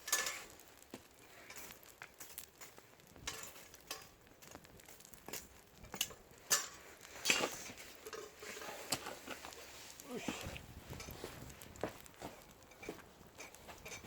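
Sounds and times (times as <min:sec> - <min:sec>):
metal utensil scraping frying pan: 0:00.0 - 0:00.6, 0:06.5 - 0:09.8.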